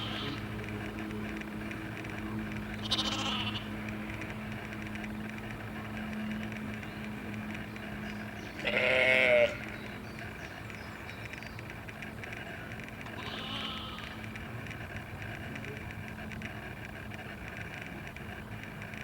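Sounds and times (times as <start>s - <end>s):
sheep or goat bleating: 0.0s - 0.4s, 2.8s - 3.7s, 8.6s - 9.6s, 13.1s - 14.2s
steady low hum: 0.0s - 19.0s.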